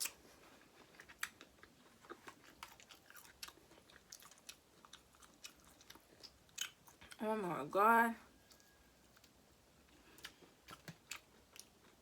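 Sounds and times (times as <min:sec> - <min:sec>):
wet chewing mouth clicks: 0:01.0 - 0:07.2.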